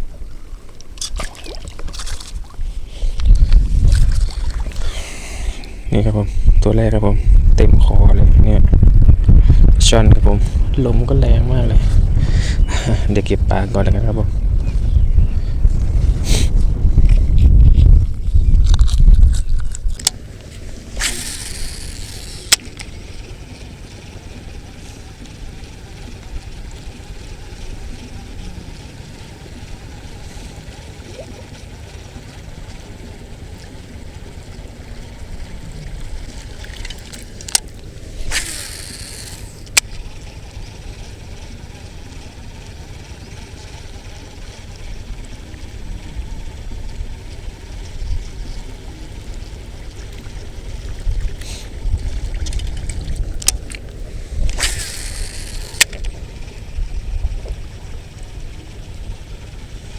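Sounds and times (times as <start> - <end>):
wind buffeting microphone: 1.3 - 29.0, 33.9 - 59.9
handling clicks and rustling: 36.2 - 40.0.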